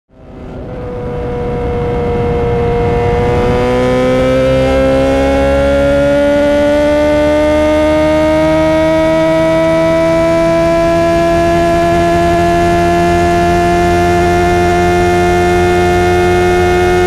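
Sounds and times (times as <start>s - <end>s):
motorcycle engine accelerating: 0.1s - 17.0s
wind rush: 0.2s - 6.6s.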